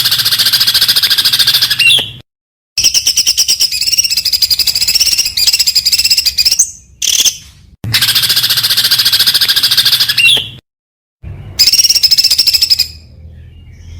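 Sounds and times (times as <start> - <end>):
songbird singing rapid notes: 11.6 - 13.9.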